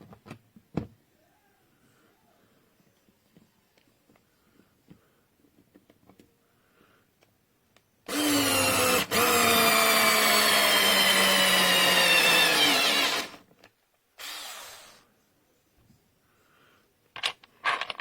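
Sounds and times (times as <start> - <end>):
cordless screwdriver motor whining: 8.1 - 13.4, 14.2 - 15.0.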